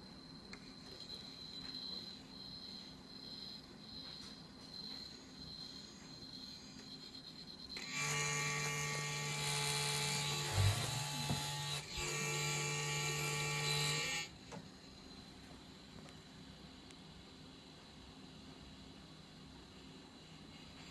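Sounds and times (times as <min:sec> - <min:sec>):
gimbal motors buzzing: 0:07.8 - 0:14.3.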